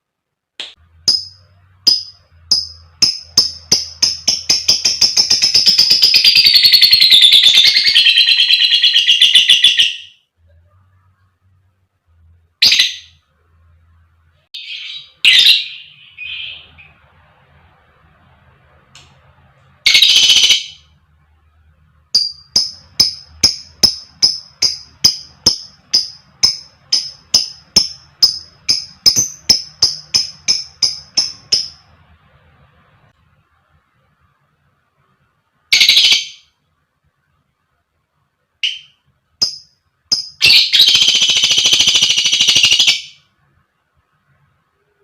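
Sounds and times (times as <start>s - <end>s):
lovebird chattering high notes: 38.6s - 43.2s.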